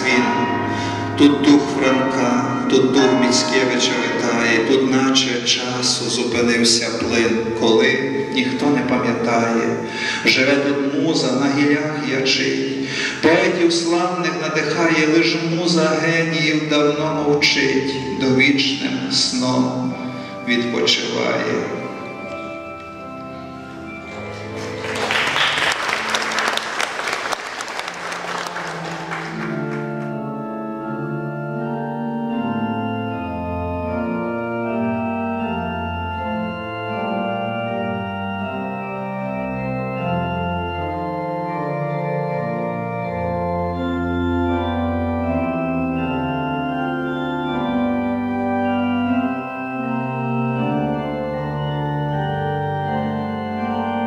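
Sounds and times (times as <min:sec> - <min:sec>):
organ playing slow chords: 0:00.0 - 0:54.0
people clapping: 0:24.3 - 0:30.2.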